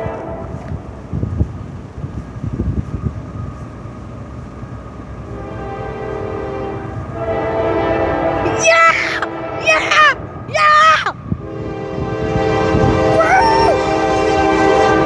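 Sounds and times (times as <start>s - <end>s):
freight train rumbling: 0.0s - 8.4s, 11.2s - 15.0s
locomotive horn chord: 5.4s - 8.4s, 11.4s - 13.2s, 13.8s - 15.0s.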